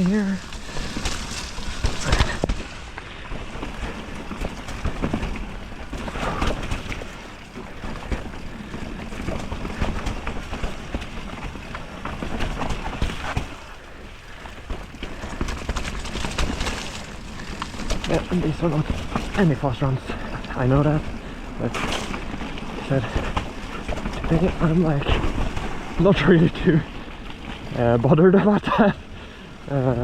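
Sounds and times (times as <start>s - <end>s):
bike rattling over roots: 0.0s - 30.0s
bike tyre noise: 0.0s - 30.0s
wind and rain on microphone: 0.0s - 30.0s.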